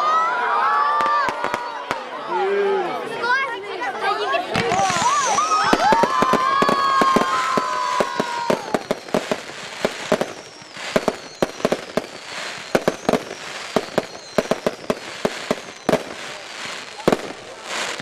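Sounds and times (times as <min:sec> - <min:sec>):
firework bangs and crackles: 0:00.9 - 0:02.2, 0:04.4 - 0:18.0
firework whistling: 0:04.6 - 0:18.0.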